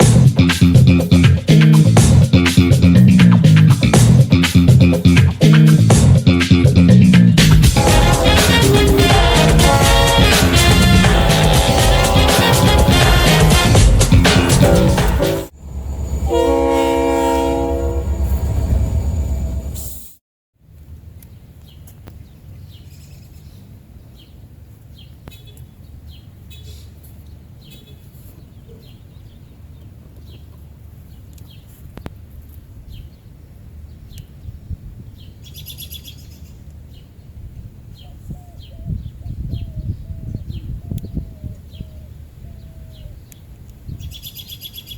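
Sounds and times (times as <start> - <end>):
low steady rumble: 7.6 - 19.8.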